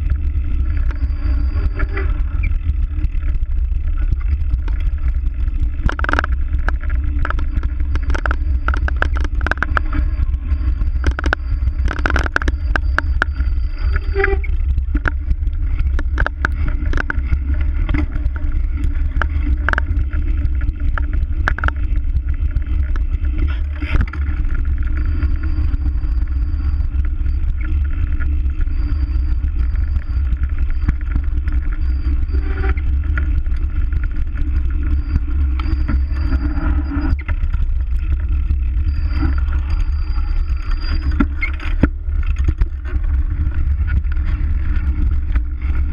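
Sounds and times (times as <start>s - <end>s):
bike clicks and rattles: 0.0s - 45.9s
wind rumbling on microphone: 0.0s - 45.9s.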